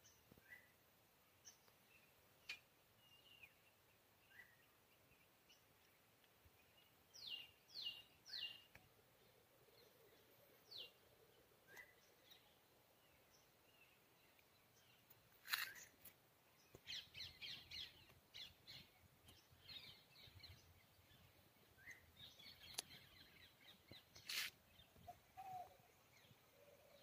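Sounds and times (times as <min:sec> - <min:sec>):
small bird chirps: 0:13.2 - 0:27.0.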